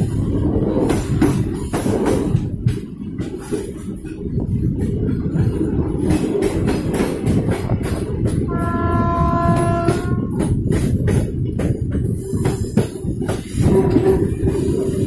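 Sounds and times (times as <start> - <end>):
train rumbling: 0.0 - 15.0
wheels clicking over rail joints: 0.0 - 15.0
train horn: 8.5 - 10.5.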